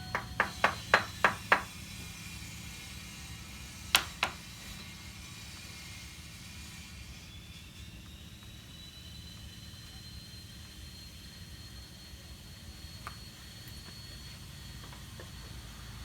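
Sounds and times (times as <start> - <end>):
hammer striking wood: 0.0 - 1.7.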